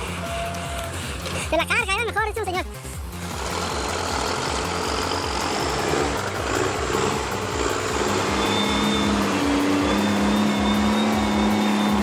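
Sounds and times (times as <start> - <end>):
truck engine throbbing: 0.0 - 12.0.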